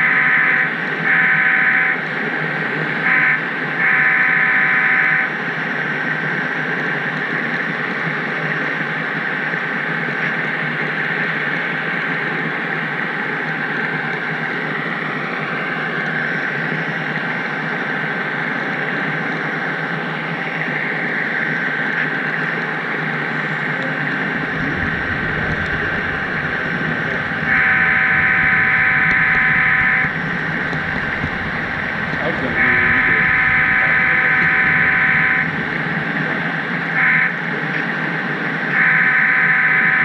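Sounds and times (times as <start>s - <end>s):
train horn blast: 0.0s - 2.0s, 3.0s - 5.4s, 23.8s - 37.6s, 38.7s - 40.0s
model train whirring: 24.1s - 37.1s.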